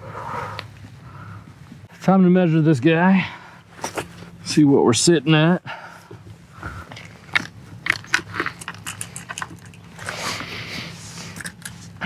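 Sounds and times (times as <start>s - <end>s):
handling clicks taps and knocks: 6.6s - 10.4s
rustling: 6.6s - 12.0s.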